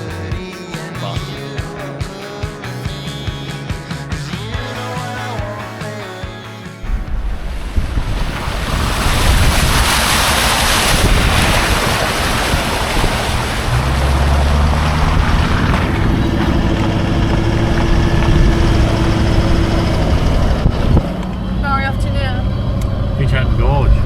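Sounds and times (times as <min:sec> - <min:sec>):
low vehicle engine hum: 0:06.8 - 0:24.0
wind rushing over microphone: 0:06.8 - 0:24.0.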